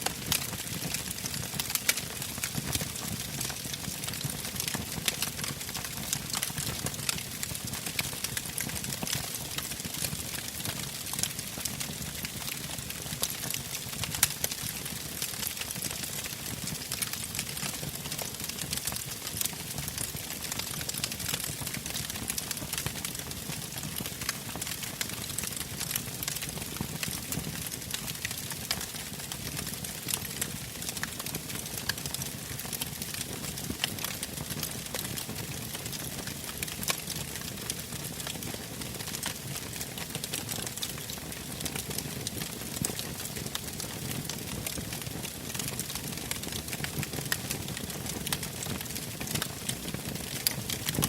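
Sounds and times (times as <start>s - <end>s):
campfire crackling: 0.0s - 51.0s
fire pops: 49.2s - 51.0s.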